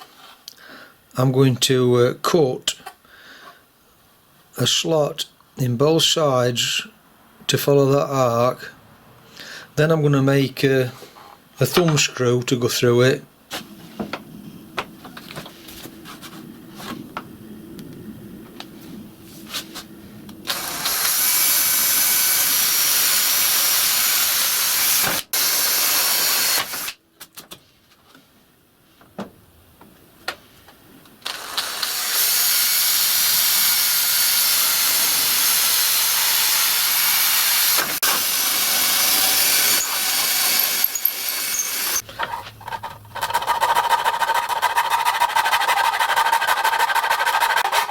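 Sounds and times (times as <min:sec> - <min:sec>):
power tool cutting plastic: 0:20.5 - 0:27.0, 0:31.2 - 0:42.0.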